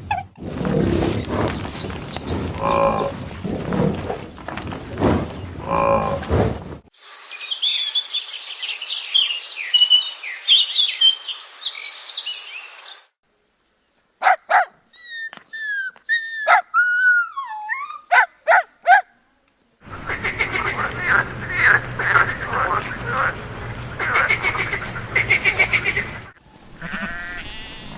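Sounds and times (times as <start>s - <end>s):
small birds chirping: 0.4s - 6.4s
cow mooing: 0.5s - 6.5s, 26.8s - 27.9s.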